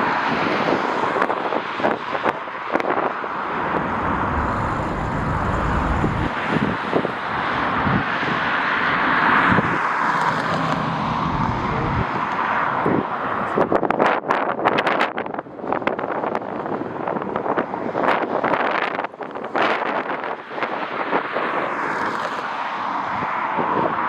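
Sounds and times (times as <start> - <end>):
wind rumbling on microphone: 0.0 - 24.0
jet airliner engines passing: 3.0 - 13.6.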